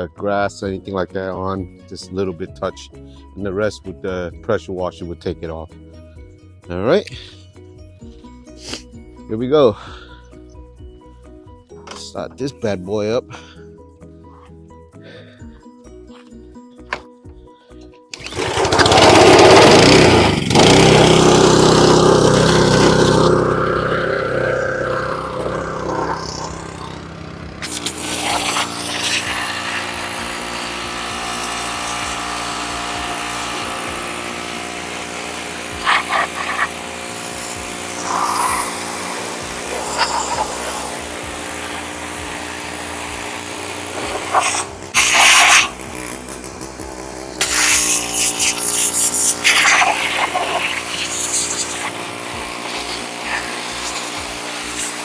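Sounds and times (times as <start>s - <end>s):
pressure washer engine running: 18.2s - 55.0s
short noisy bursts: 18.2s - 55.0s.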